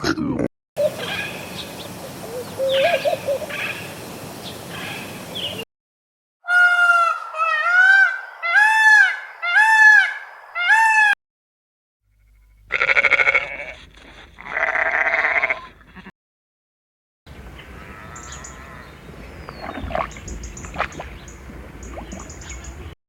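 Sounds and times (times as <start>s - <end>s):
livestock bleating: 12.7s - 13.8s, 14.4s - 16.1s, 17.7s - 18.9s.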